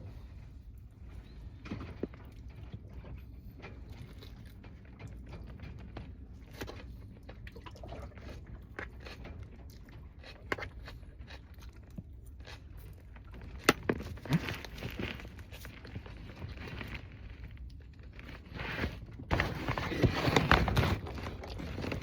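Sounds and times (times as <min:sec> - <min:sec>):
low steady hum: 0:00.0 - 0:22.0
person chewing and crunching: 0:02.1 - 0:05.2, 0:06.4 - 0:18.4.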